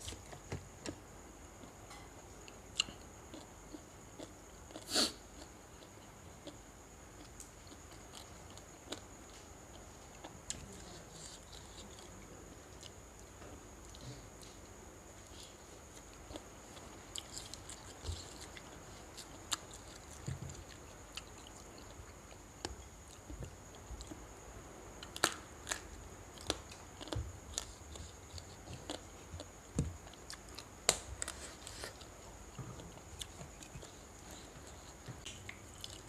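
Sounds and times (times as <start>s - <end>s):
person chewing food: 2.4s - 6.6s, 7.2s - 10.4s, 15.2s - 24.3s, 25.0s - 36.0s.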